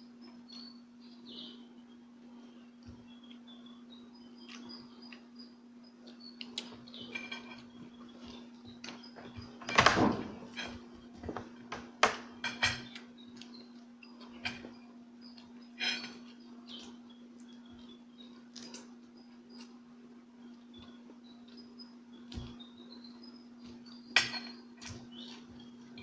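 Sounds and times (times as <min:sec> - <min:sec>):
steady low hum: 0:00.0 - 0:26.0
utensils clicking on dishes: 0:12.0 - 0:13.1, 0:24.2 - 0:25.0.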